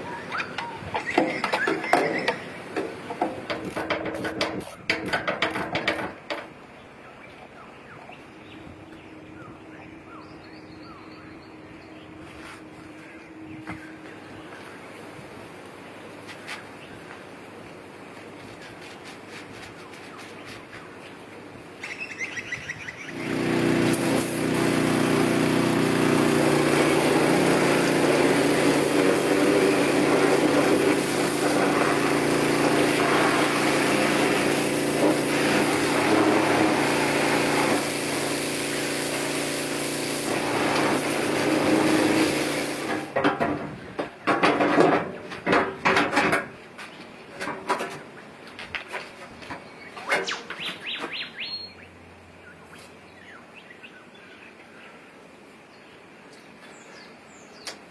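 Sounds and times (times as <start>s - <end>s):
irregular clicks and knocks: 0.6s - 6.7s
small diesel engine running: 23.1s - 43.1s.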